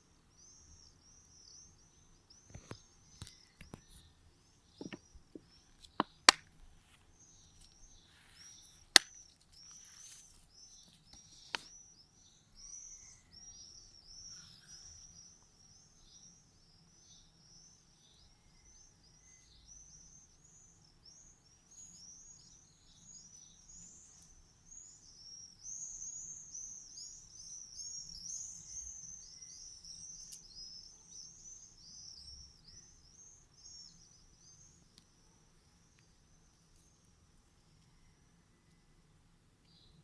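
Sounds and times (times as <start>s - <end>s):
songbird twittering: 7.2s - 34.9s.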